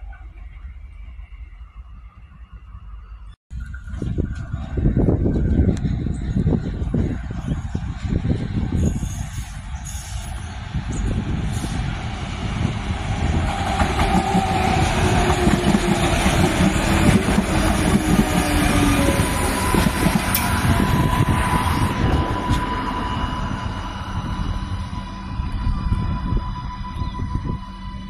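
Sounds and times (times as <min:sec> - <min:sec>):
railcar wheels rumbling on rails: 0:00.0 - 0:28.0
steady whine: 0:17.8 - 0:28.0.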